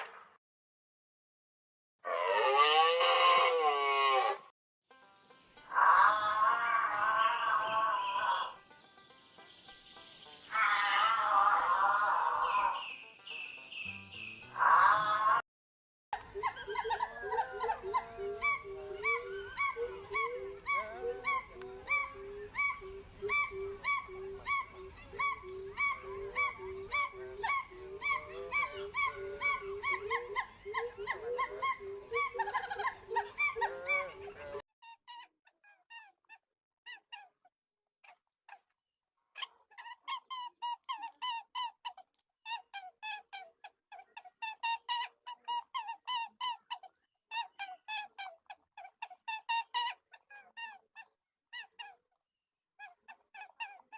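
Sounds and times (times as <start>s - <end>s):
rapid pitched animal calls: 10.5s - 15.4s, 16.2s - 34.6s
squeaky chirps: 12.4s - 15.1s, 16.4s - 36.2s.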